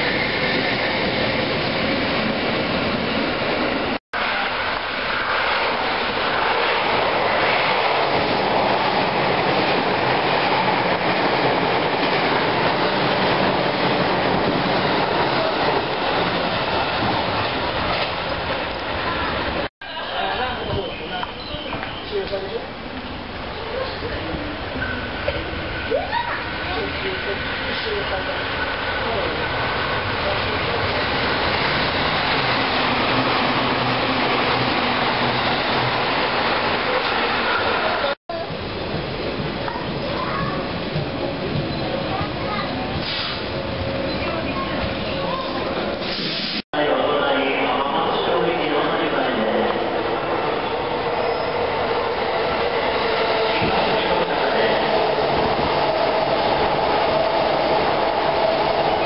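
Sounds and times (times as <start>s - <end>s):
train wheels rushing on rails: 0.0s - 19.7s, 20.5s - 46.6s, 48.0s - 59.0s
electric train pulling in: 46.8s - 59.0s.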